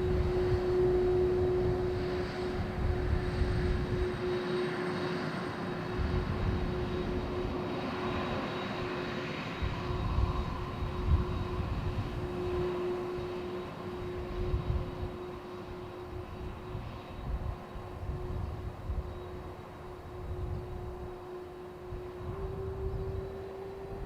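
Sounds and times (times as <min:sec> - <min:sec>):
jet engines roaring: 0:00.0 - 0:24.0.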